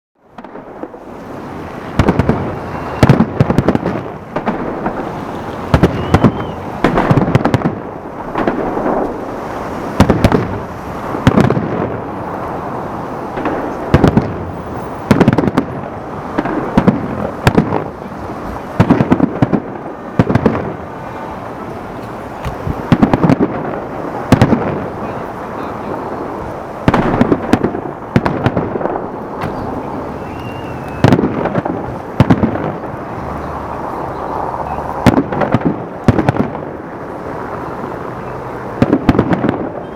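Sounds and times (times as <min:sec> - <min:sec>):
fireworks bursting in loud bangs: 0:00.3 - 0:39.9
rumbling echo: 0:15.1 - 0:39.8.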